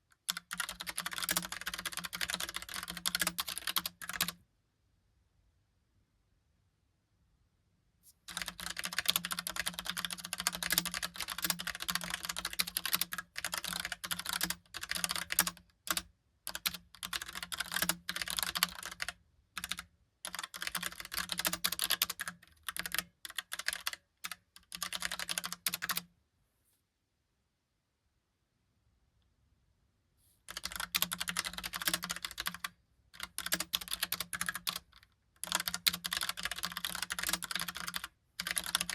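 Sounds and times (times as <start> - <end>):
fast typing on keyboard: 0.2 - 4.4, 8.3 - 26.0, 30.5 - 38.9.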